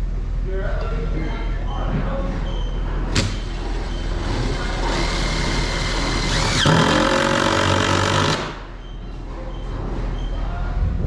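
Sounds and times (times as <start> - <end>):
impact drill running: 3.9 - 8.6.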